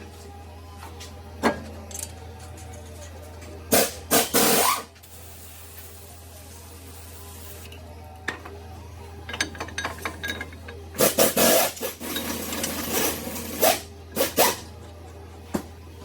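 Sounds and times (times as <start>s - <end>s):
metal tools clicking and scraping: 9.3s - 10.7s.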